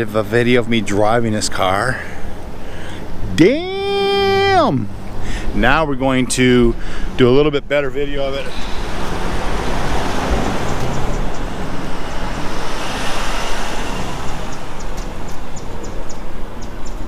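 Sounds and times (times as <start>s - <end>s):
car tyre and engine noise: 0.0s - 17.0s.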